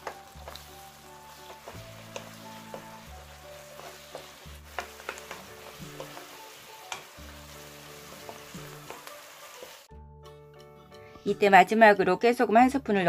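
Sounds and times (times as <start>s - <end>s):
food sizzling in a pan: 0.0s - 9.9s
soft background music: 0.0s - 13.0s
spatula clicking against pan: 3.8s - 5.4s, 6.0s - 7.1s.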